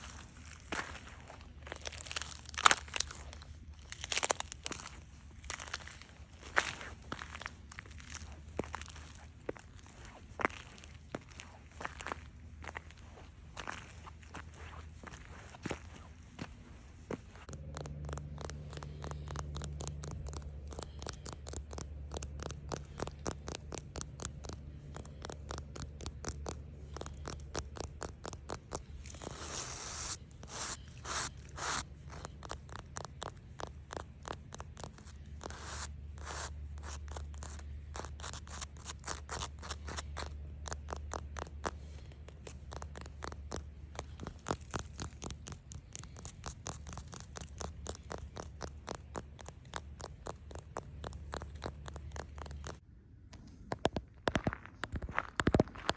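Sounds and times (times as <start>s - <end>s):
steady low hum: 0.0s - 55.9s
rapid scratching: 13.8s - 52.8s.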